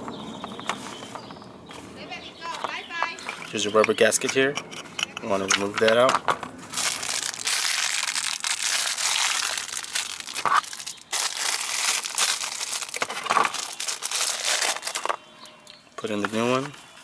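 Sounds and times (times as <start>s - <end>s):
plastic crinkling by hand: 5.0s - 16.9s.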